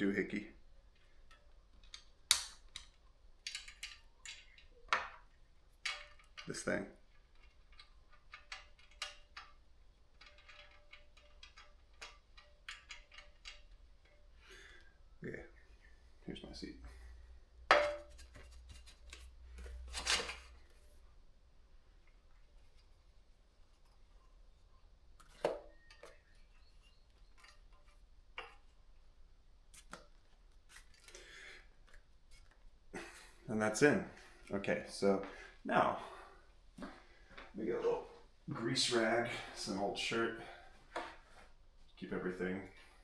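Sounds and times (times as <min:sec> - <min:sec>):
metal parts clicking and knocking: 0:00.9 - 0:14.4.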